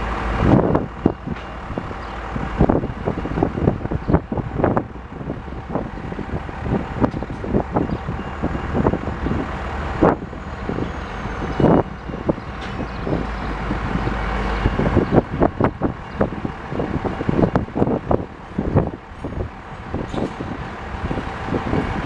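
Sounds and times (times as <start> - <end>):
freight train rumbling: 0.0 - 22.0
wheels clacking over rail joints: 5.4 - 22.0.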